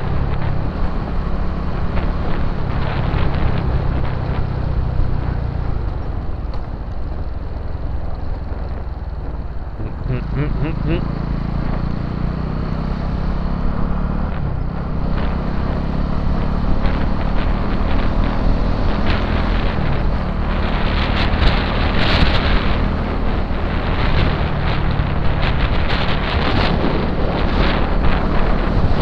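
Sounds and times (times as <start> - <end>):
motorcycle engine running: 0.0 - 29.0
wind buffeting microphone: 14.2 - 29.0.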